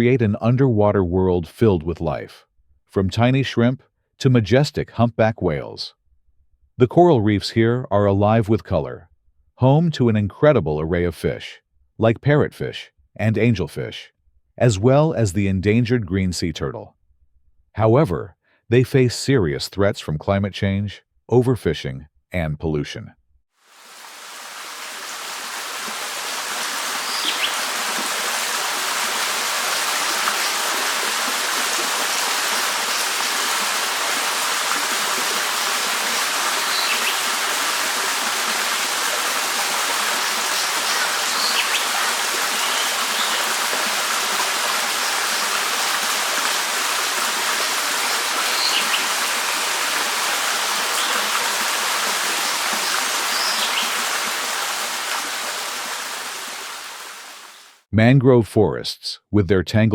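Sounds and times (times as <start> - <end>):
flowing water rushing: 23.6 - 57.8
high bird chirps: 27.0 - 27.7, 36.6 - 37.2, 40.5 - 41.9, 42.6 - 43.5, 48.4 - 49.1, 52.8 - 54.0.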